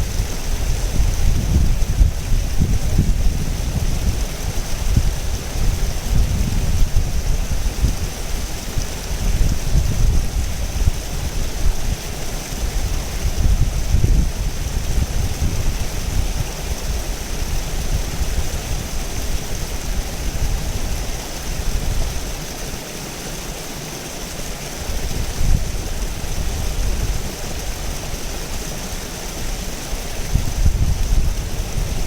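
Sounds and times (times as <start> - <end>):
river rushing over rocks: 0.0 - 32.0.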